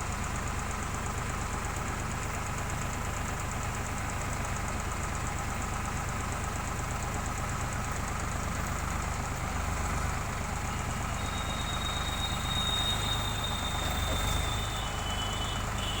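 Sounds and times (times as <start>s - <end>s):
tractor diesel engine running: 0.0s - 16.0s
thin high whine: 10.8s - 16.0s.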